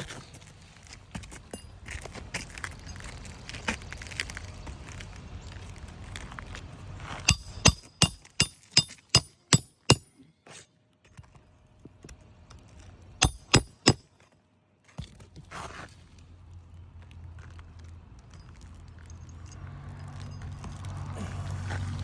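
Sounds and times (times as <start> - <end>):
hammer on metal: 7.3 - 10.2, 13.2 - 14.2
scrape: 15.4 - 16.1.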